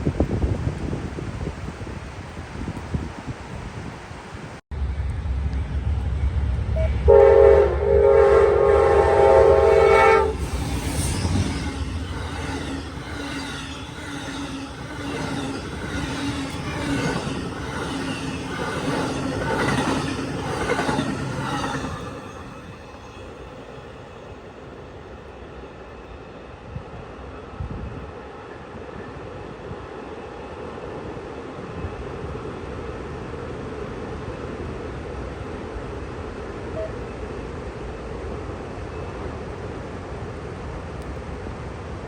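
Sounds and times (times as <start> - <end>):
diesel locomotives passing: 0.0 - 42.0
train horn blast: 6.6 - 13.3
train wheels clickety-clack: 10.2 - 23.0.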